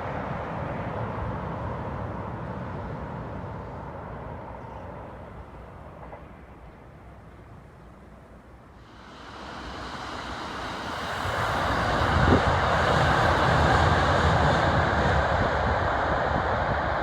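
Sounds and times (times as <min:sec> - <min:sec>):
train wheels rumbling on rails: 0:00.0 - 0:07.3, 0:08.8 - 0:17.0.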